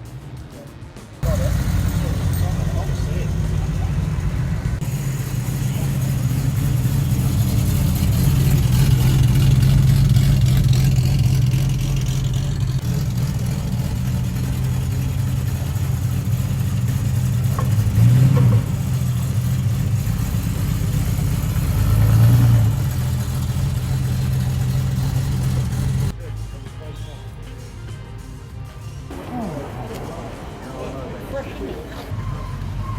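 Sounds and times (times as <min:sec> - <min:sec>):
car engine idling: 0:01.2 - 0:26.2
car engine revving: 0:01.2 - 0:26.2.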